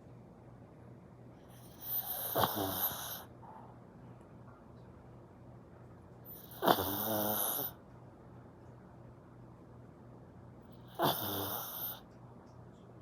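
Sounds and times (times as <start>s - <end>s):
dog snoring: 1.5s - 3.3s, 6.3s - 7.8s, 10.8s - 12.0s.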